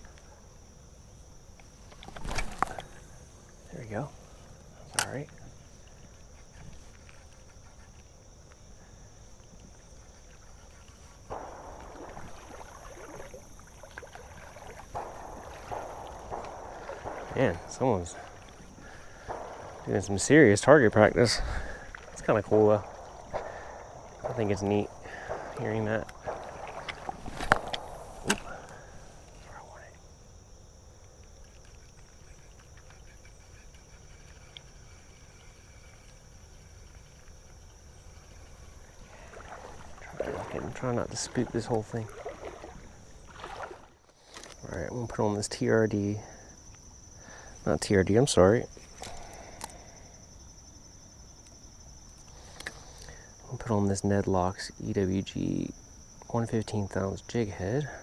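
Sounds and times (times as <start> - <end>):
insects droning: 0.0 - 58.0
water splashing around wading person: 1.7 - 4.7, 9.4 - 29.6, 36.8 - 44.7
faint click: 4.9 - 5.4, 51.4 - 53.2.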